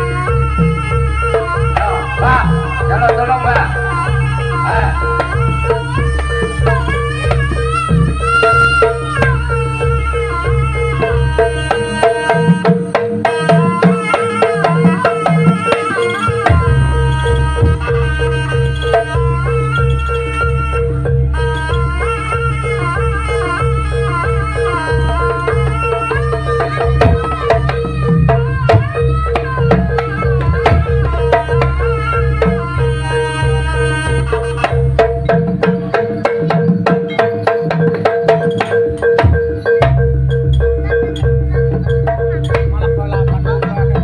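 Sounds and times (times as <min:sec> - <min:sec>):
hand drums playing: 0:00.0 - 0:44.0
wavering melody line: 0:00.0 - 0:44.0.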